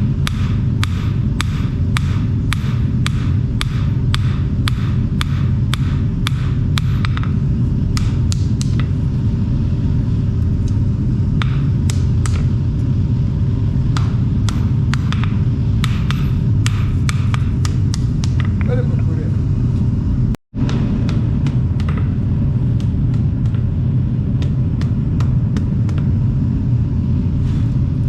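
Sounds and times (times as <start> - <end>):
hammer striking steel on anvil: 0.0 - 7.4, 11.4 - 12.5, 13.9 - 18.5
steady low rumble: 0.0 - 28.0.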